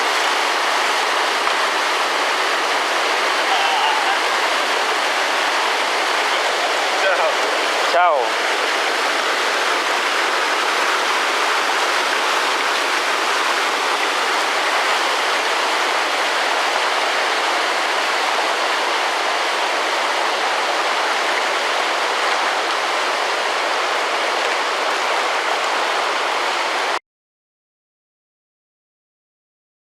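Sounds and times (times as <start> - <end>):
whitewater rushing: 0.0 - 27.0.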